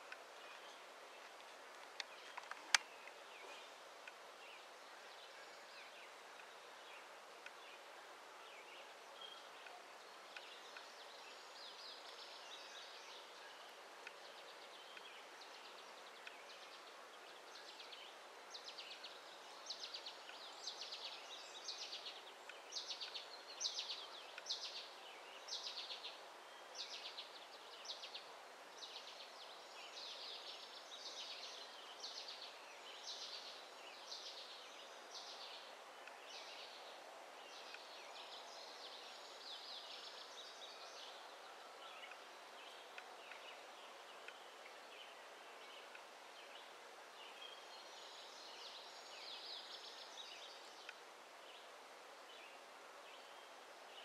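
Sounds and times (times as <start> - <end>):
outdoor background rush: 0.0 - 54.0
songbird chirping: 0.0 - 54.0.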